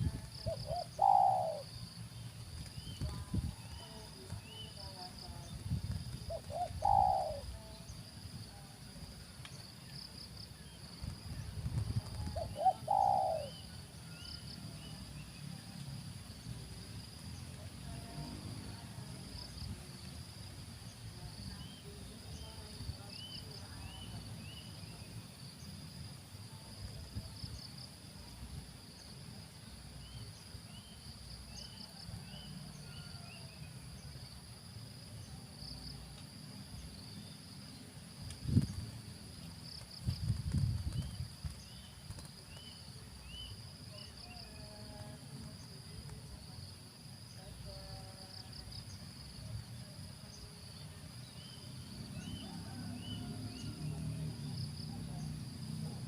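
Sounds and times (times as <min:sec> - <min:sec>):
high insect drone with trills: 0:00.0 - 0:56.0
dove cooing: 0:00.1 - 0:01.7, 0:06.3 - 0:07.6, 0:12.1 - 0:13.7.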